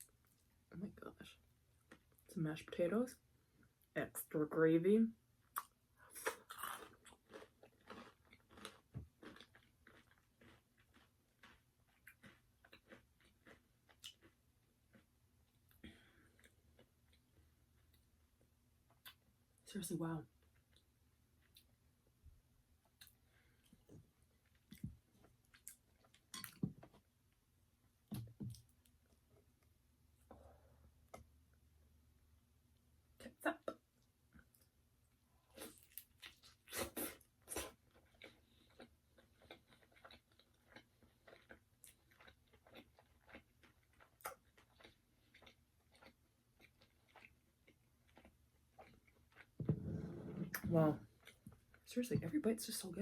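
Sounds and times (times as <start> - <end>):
crunchy chewing: 5.6 - 15.1, 35.6 - 49.6.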